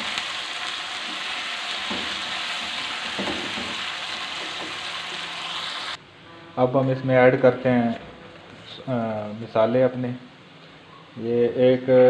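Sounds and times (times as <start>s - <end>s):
chicken sizzling in hot oil: 0.0s - 6.0s.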